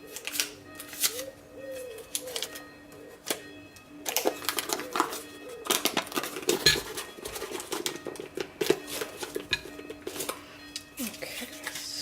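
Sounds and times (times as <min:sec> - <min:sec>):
background music: 0:00.0 - 0:12.0
kitchen utensils clinking: 0:04.1 - 0:11.9.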